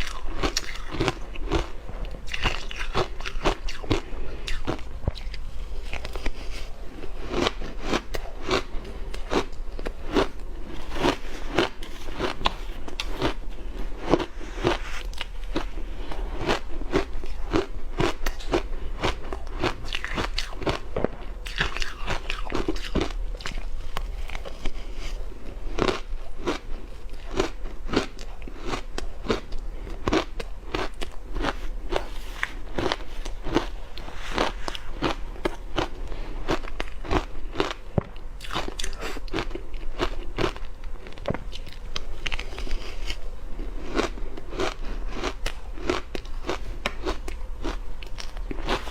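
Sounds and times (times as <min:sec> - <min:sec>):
ice being chewed: 0:00.0 - 0:48.9.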